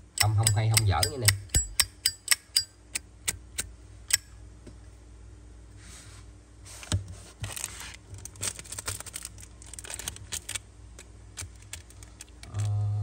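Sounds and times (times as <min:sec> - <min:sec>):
small metallic clicks and taps: 0:00.1 - 0:04.3
packaging rustling: 0:07.2 - 0:12.6.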